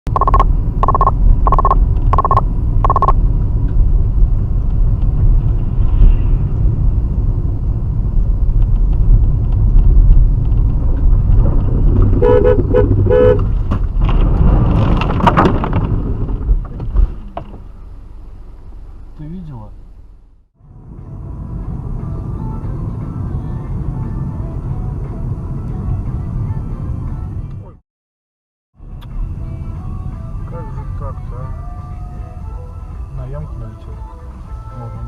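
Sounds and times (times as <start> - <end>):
vehicle rumble on road: 0.1 - 27.8, 28.8 - 35.0
vehicle horn blasts: 12.2 - 13.5.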